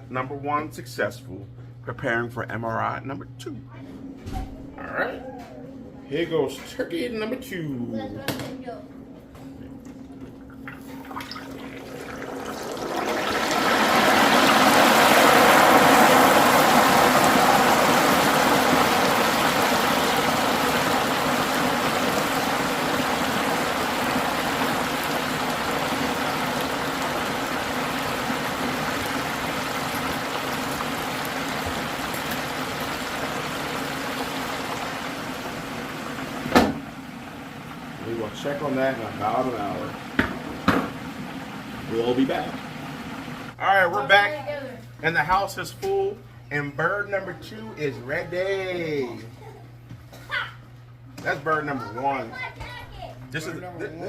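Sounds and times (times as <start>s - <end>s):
hot oil bubbling and sizzling: 10.7s - 43.6s.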